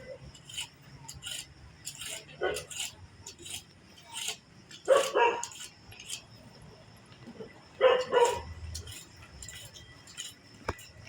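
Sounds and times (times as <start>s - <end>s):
dog barking: 4.9s - 5.5s, 7.8s - 8.5s.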